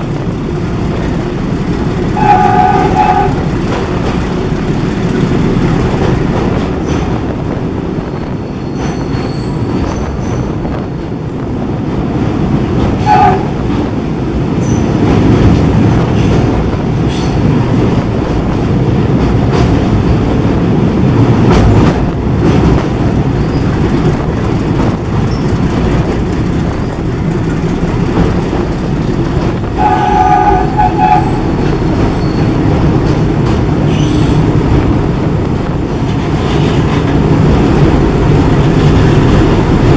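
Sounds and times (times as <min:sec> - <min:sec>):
train wheels rumbling on rails: 0:00.0 - 0:39.9
train horn: 0:02.2 - 0:03.4, 0:13.0 - 0:13.6, 0:29.8 - 0:31.6.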